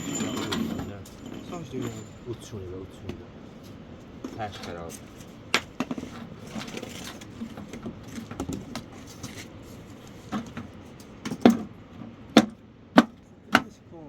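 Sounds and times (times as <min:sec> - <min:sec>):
sharp knocks: 0:12.4 - 0:13.7.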